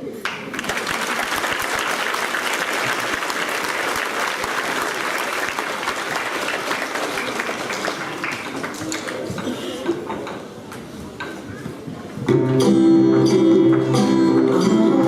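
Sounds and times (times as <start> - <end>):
audience clapping: 0.2 - 9.4.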